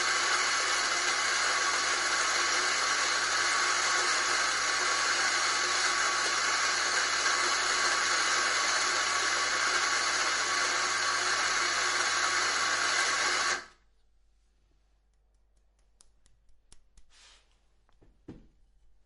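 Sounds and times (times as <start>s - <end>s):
electric coffee grinder whirring: 0.0s - 13.7s
soft rustle: 17.1s - 17.8s.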